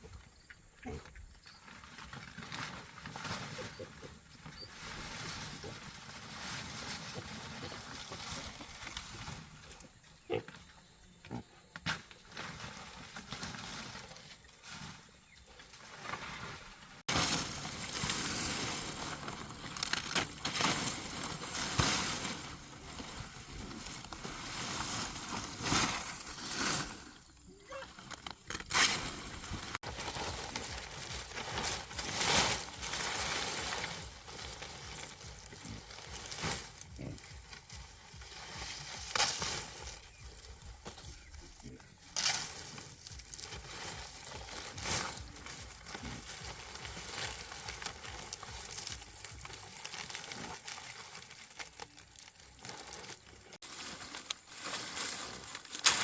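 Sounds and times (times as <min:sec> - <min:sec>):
pigs grunting: 0:10.2 - 0:11.7, 0:35.5 - 0:37.7.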